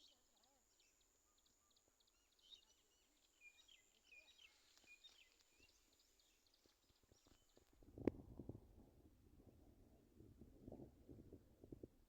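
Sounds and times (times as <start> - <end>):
small birds chirping: 0.0 - 7.7.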